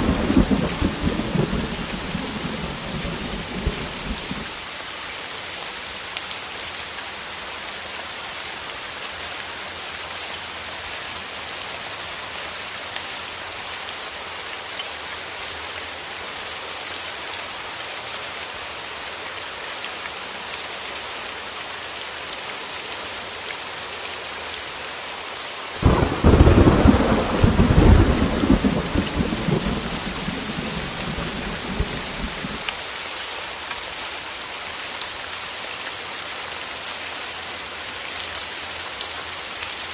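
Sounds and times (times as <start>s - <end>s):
thunderclap rumbling: 0.0s - 4.5s, 25.8s - 32.7s
heavy rain hiss: 0.0s - 39.9s.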